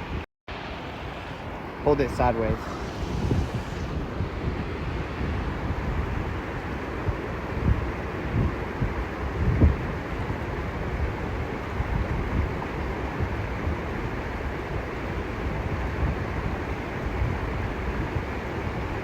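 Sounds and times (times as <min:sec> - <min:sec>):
waterfall and stream rushing: 0:00.5 - 0:05.5
low rumble: 0:02.0 - 0:06.2.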